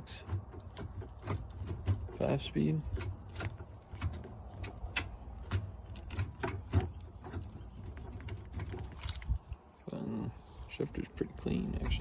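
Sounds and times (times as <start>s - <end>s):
light clicks and knocks: 0.0s - 9.4s.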